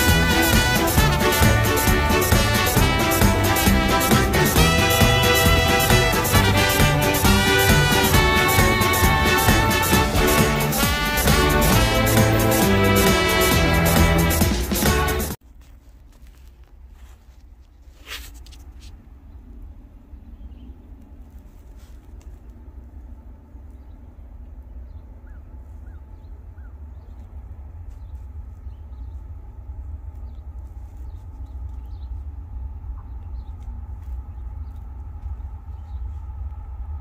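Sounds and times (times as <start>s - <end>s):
distant freight train rumble: 0.0s - 15.4s, 19.0s - 37.0s.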